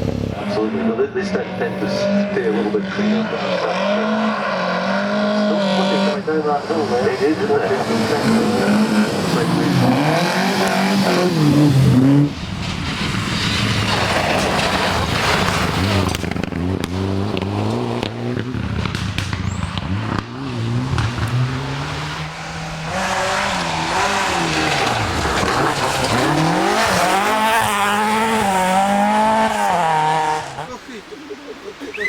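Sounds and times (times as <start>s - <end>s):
rally car engine revving: 0.0s - 31.1s.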